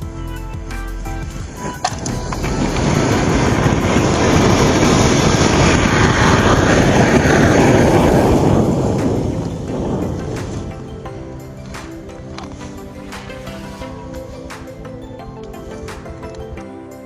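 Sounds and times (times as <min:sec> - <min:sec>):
firework rocket hissing: 0:01.0 - 0:14.4.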